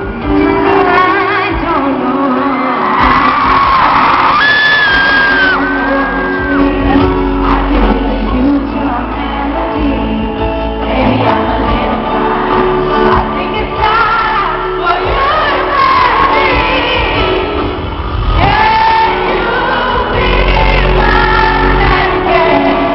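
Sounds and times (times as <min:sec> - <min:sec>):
crowd shouting and singing along: 0:00.0 - 0:22.9
woman singing pop ballad: 0:00.0 - 0:22.9
crowd whoops: 0:02.3 - 0:06.8.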